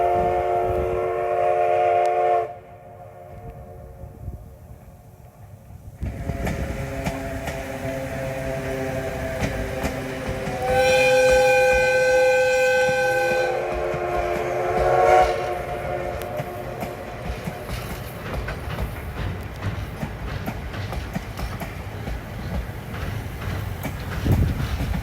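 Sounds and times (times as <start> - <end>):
steam whistle blasts: 0.0 - 3.8, 6.0 - 17.2
train clattering on rails: 6.0 - 25.0.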